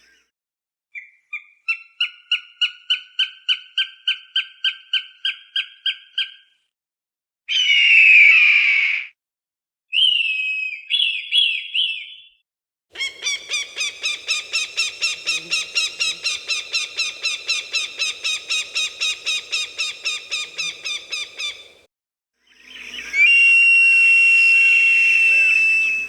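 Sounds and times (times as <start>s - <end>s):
falcon calling: 13.0s - 21.8s.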